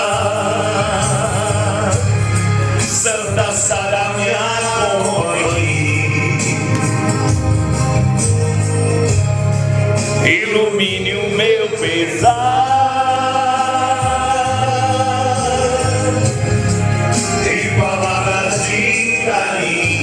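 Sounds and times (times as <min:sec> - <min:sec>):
instrumental accompaniment: 0:00.0 - 0:20.0
person singing devotional song: 0:10.2 - 0:16.4.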